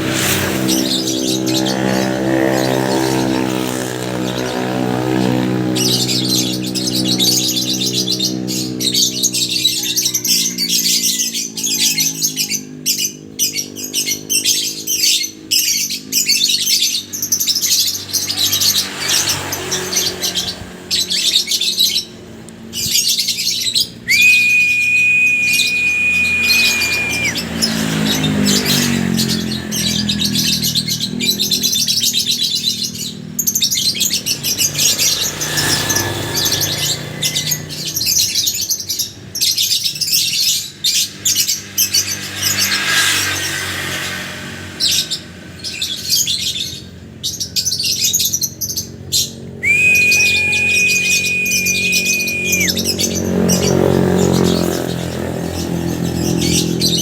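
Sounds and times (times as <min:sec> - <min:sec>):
lovebirds chattering and chirping: 0:00.0 - 0:42.4, 0:45.7 - 0:57.0
low hum with shifting pitch: 0:24.1 - 0:27.6, 0:49.6 - 0:54.3
high-pitched tone: 0:49.7 - 0:52.7.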